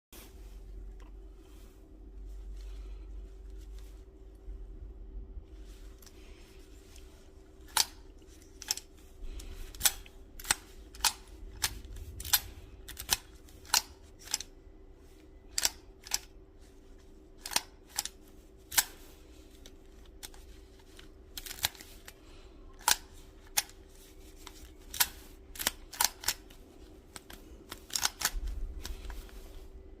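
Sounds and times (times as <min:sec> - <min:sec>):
faint steady hum: 0:00.2 - 0:30.0
sharp mechanical clicks: 0:09.7 - 0:14.5, 0:15.5 - 0:16.3, 0:17.4 - 0:19.0, 0:24.9 - 0:29.3.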